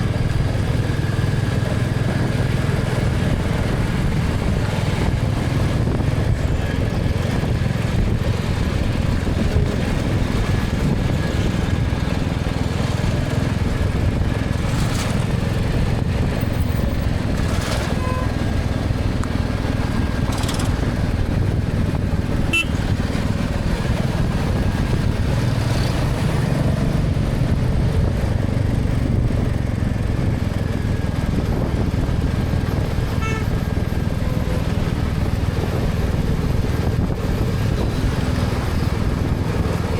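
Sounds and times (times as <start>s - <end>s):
motorcycle engine running: 0.0s - 39.9s
faint car horns: 17.9s - 18.5s, 22.5s - 22.9s, 33.1s - 33.8s.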